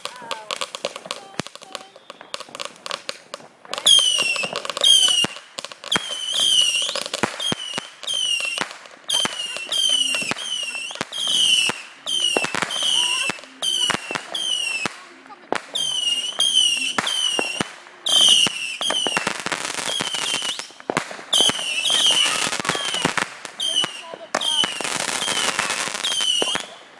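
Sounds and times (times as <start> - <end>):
firework pops and crackling: 0.0 - 26.9
whistling firework shots: 0.0 - 26.9.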